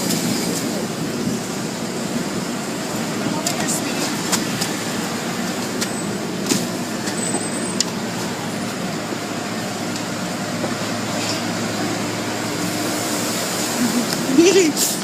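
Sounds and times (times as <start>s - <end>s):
car wash equipment rushing: 0.0s - 15.0s.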